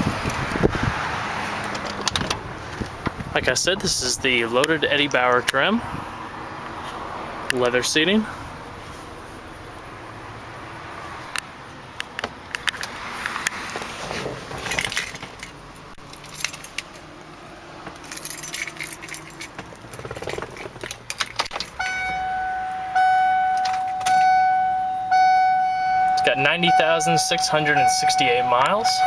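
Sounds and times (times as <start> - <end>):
clicks and rustling: 11.3 - 17.1, 17.8 - 22.2
keys jangling: 14.6 - 17.0, 18.0 - 22.2, 23.6 - 24.3
car warning chime: 21.7 - 29.0.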